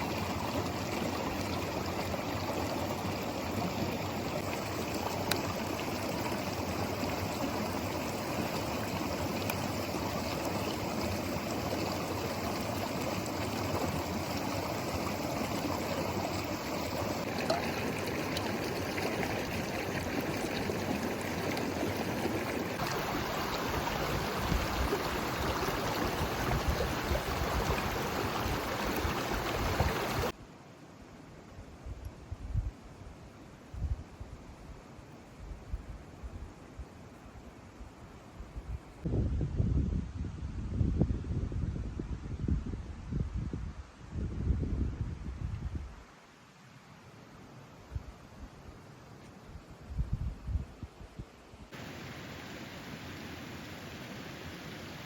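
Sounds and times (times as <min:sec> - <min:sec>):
river stream flowing: 0:00.0 - 0:30.8, 0:51.7 - 0:55.0.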